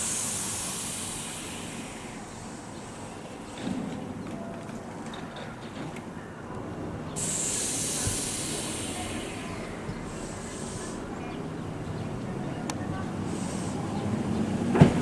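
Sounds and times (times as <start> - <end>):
compressed air hiss: 0.0 - 3.8, 7.2 - 11.8, 13.1 - 14.4
electric train low hum: 0.0 - 15.0.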